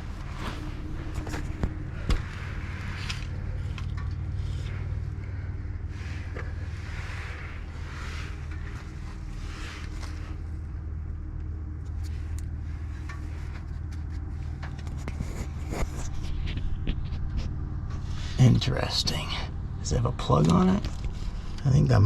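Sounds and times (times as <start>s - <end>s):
vehicle engine idling: 0.0s - 22.0s
light clicks and scrapes: 11.8s - 18.5s.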